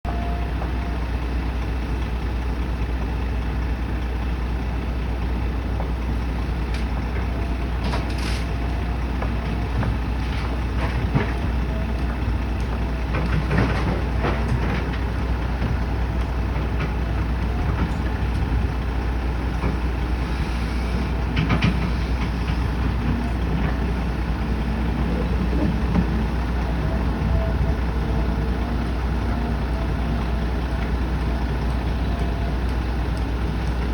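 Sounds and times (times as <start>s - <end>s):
low construction rumble: 0.0s - 33.9s
knocks and clanks: 9.2s - 15.8s, 21.2s - 28.3s.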